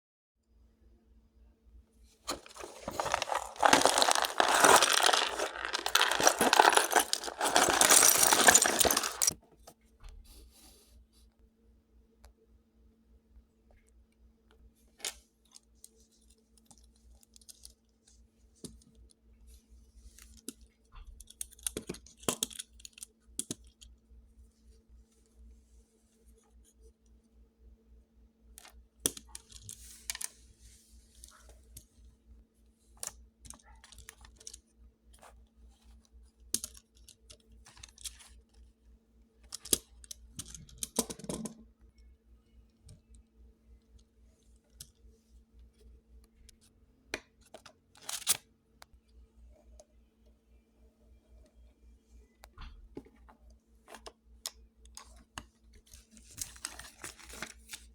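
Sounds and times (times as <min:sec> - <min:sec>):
packaging crinkling: 0:02.3 - 0:09.4
plastic pieces rattling: 0:02.3 - 0:09.4.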